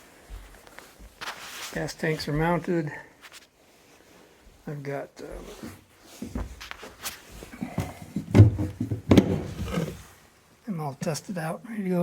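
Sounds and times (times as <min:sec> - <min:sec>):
footsteps and shuffling: 0:00.0 - 0:10.5.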